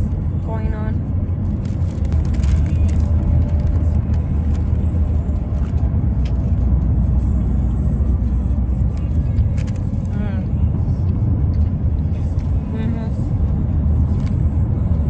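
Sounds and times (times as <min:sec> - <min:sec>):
car engine idling: 0:00.0 - 0:15.0
paper wrapper crinkling: 0:01.6 - 0:04.8.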